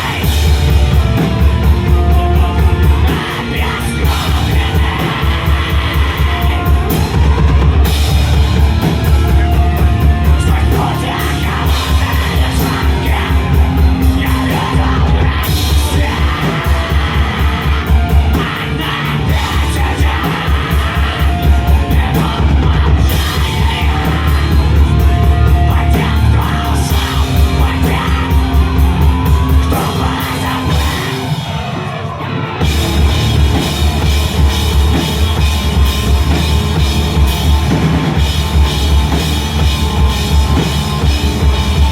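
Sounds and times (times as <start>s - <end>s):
person singing: 0.0s - 41.9s
pounding drum kit: 0.0s - 41.9s
rock band playing live: 0.0s - 41.9s.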